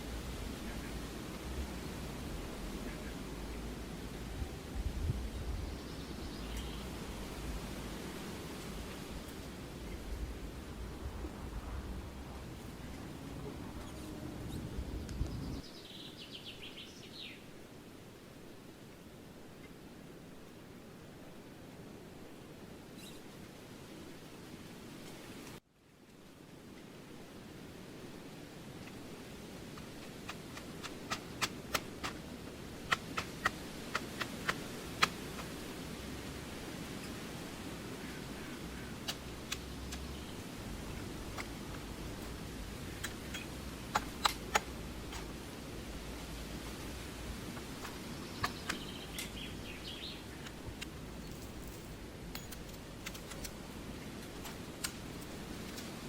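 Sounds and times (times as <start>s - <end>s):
bird chirping: 5.4s - 7.0s, 13.7s - 17.4s, 47.8s - 51.8s
low background rush: 26.3s - 56.0s
sharp snaps: 29.7s - 32.2s, 32.8s - 35.6s, 39.0s - 40.2s, 41.2s - 45.4s, 47.5s - 49.5s, 52.3s - 56.0s
sharp clicks: 43.0s - 45.3s, 47.6s - 49.4s, 52.3s - 56.0s.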